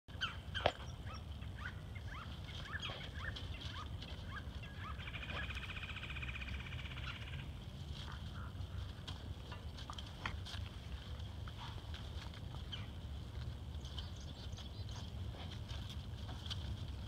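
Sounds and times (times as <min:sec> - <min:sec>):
bird trill: 0:00.1 - 0:07.4
small birds chirping: 0:00.1 - 0:07.5, 0:12.5 - 0:15.5
low rumble: 0:00.1 - 0:17.0.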